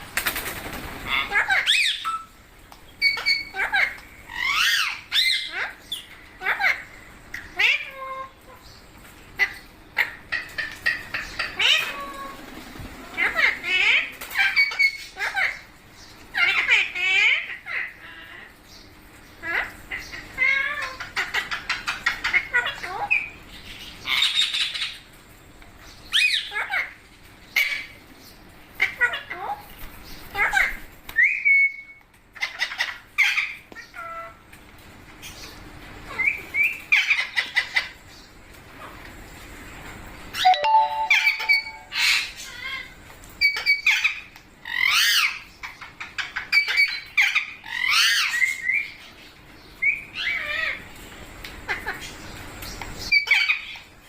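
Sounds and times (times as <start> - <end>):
parrot squawking and chattering: 1.1 - 2.4, 3.0 - 8.5, 9.4 - 12.4, 13.1 - 15.7, 16.3 - 18.5, 19.4 - 23.3, 26.1 - 27.0, 28.8 - 29.7, 30.3 - 34.4, 36.1 - 38.0, 40.4 - 49.0, 53.1 - 53.9
parrot calling: 40.4 - 49.0, 53.1 - 53.8.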